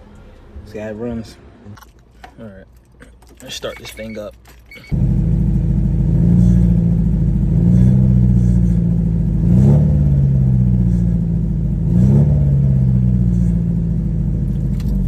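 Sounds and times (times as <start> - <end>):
car engine revving: 4.9 - 15.0.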